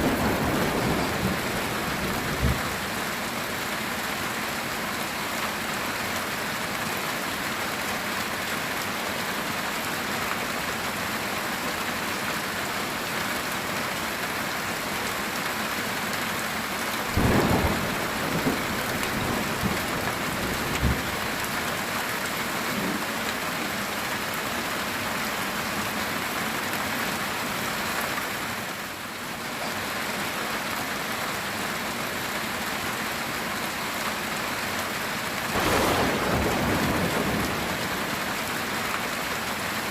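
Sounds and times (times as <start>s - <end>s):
thunder rumbling: 0.0s - 3.0s, 17.2s - 21.5s, 35.5s - 38.5s
heavy rain on a tin roof: 0.0s - 39.9s.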